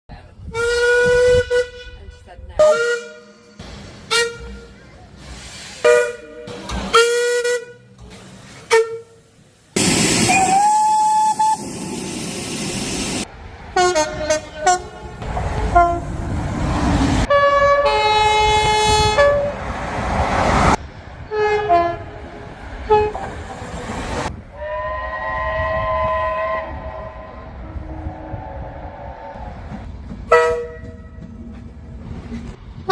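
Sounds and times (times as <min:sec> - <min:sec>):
train horn blasts: 0:00.5 - 0:03.5, 0:04.1 - 0:04.7, 0:05.8 - 0:07.9, 0:13.8 - 0:16.1, 0:17.3 - 0:19.6, 0:21.3 - 0:22.2, 0:22.9 - 0:23.3, 0:24.5 - 0:28.4, 0:30.3 - 0:31.3
steam hissing: 0:05.2 - 0:06.0, 0:09.4 - 0:13.3
train whistle sliding up: 0:10.0 - 0:11.7, 0:24.6 - 0:28.4.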